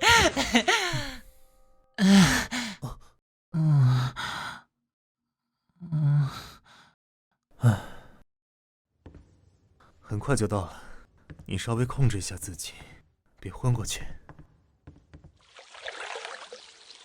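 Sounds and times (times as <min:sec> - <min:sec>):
man sighing and moaning: 0:02.0 - 0:03.0.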